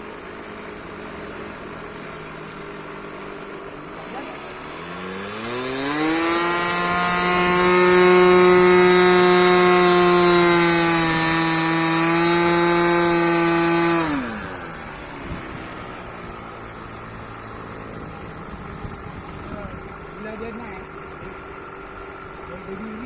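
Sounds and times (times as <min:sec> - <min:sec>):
model airplane engine buzzing: 0:00.0 - 0:23.0.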